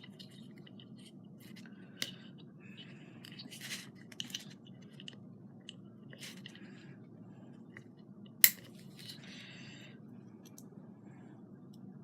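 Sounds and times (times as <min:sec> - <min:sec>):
rustling and scraping of materials: 0:00.0 - 0:05.2, 0:06.1 - 0:06.6, 0:08.6 - 0:09.4.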